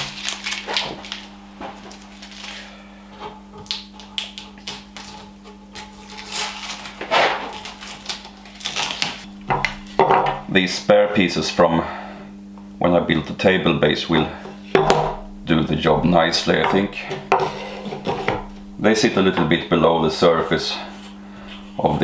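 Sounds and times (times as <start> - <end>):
tape being peeled off: 0.0 - 2.6, 3.6 - 9.3
faint steady hum: 0.0 - 22.0.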